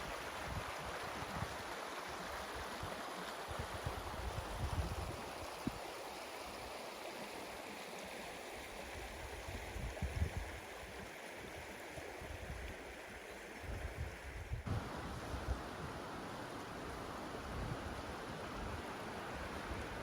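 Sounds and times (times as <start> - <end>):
river water rushing: 14.7 - 20.0.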